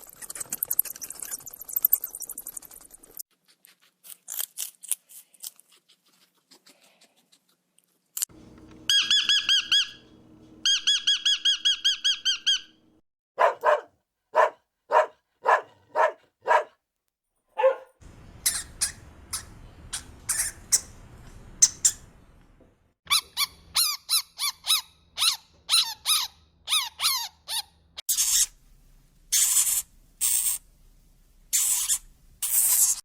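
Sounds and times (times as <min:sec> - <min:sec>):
short animal yelps: 0:13.4 - 0:16.7.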